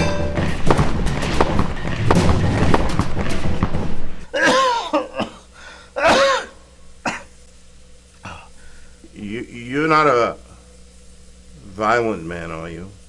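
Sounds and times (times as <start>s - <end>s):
knocks and thuds: 0.0s - 4.3s.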